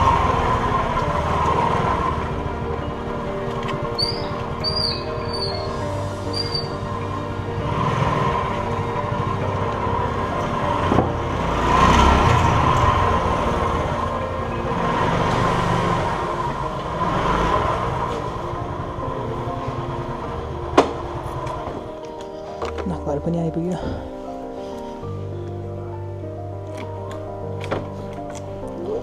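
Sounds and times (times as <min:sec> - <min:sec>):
motor scooter engine hum: 0:00.0 - 0:22.8
road and wind noise: 0:00.0 - 0:24.6.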